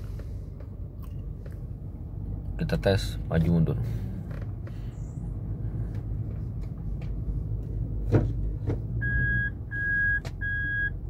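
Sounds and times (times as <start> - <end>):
engine idling rumble: 0.0 - 11.0
clicks and knock from controls: 10.1 - 10.4.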